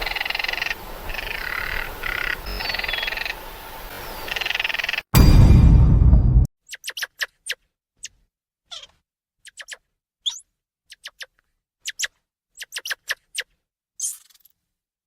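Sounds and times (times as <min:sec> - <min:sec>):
small animal squeaking: 0:08.0 - 0:14.5.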